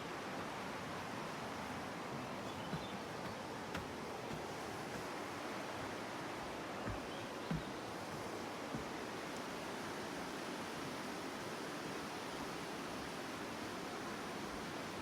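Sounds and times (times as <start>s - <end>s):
soft low thumps: 6.8s - 9.0s.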